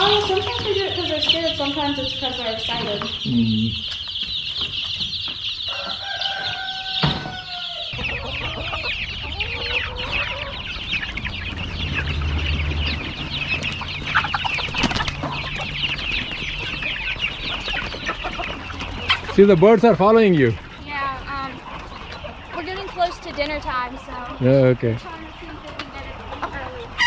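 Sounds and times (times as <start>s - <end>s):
chickens clucking: 0.0s - 27.0s.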